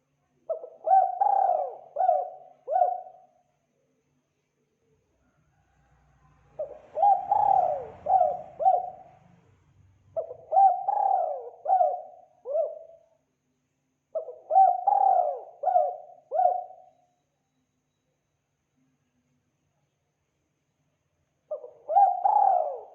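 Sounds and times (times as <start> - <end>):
dove cooing: 0.5 - 3.3, 6.5 - 9.2, 10.2 - 13.0, 14.1 - 16.9, 21.5 - 22.9.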